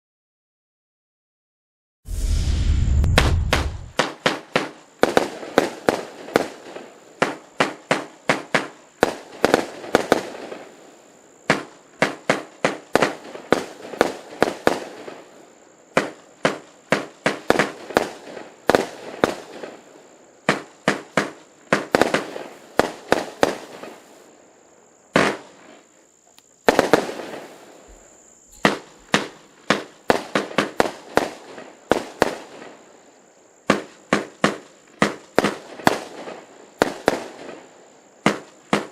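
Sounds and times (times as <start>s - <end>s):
fireworks banging and crackling: 2.1s - 10.8s, 11.5s - 15.2s, 15.9s - 19.8s, 20.4s - 24.2s, 25.2s - 25.7s, 26.7s - 32.8s, 33.7s - 38.9s.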